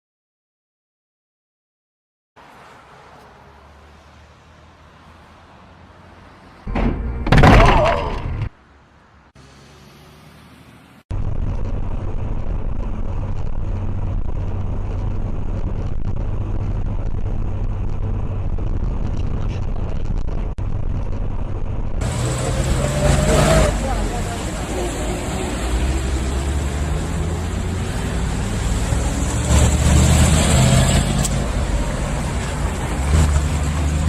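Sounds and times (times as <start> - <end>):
loud clattering crash: 6.7 - 8.5
heavy vehicle engine rumbling: 11.1 - 34.0.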